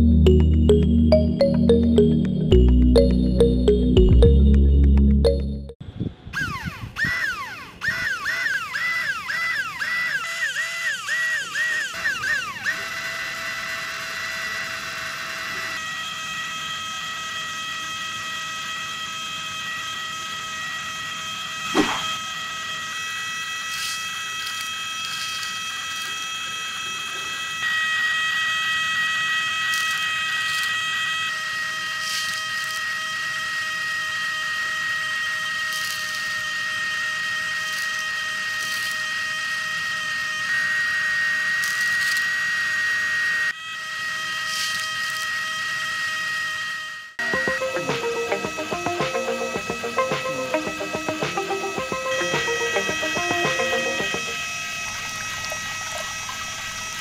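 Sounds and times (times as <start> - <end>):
toy motor high-pitched whine: 6.2 - 57.0
sharp knock: 21.7 - 22.1.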